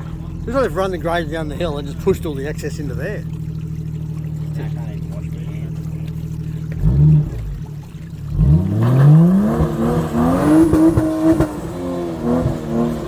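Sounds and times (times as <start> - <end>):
engine revving hard: 8.3 - 13.0.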